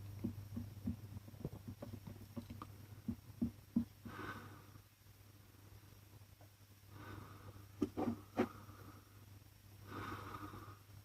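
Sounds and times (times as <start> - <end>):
person breathing: 4.0 - 4.9, 6.9 - 10.9.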